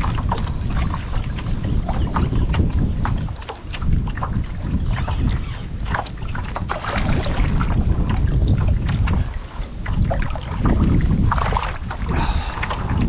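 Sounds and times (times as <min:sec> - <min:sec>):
water splashing against kayak: 0:00.0 - 0:13.0
wind buffeting microphone: 0:00.0 - 0:13.0.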